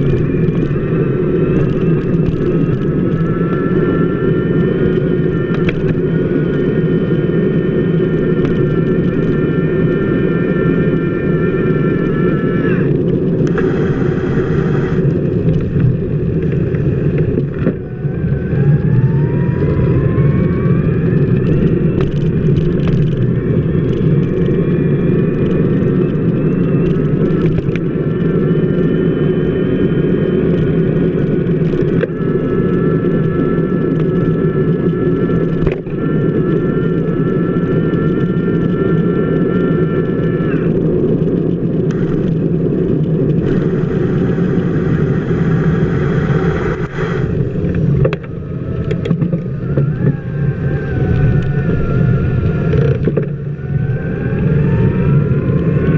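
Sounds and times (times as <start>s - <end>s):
thin high whine: 0.0s - 22.4s, 41.9s - 48.6s
bicycle road rumble: 0.0s - 55.9s.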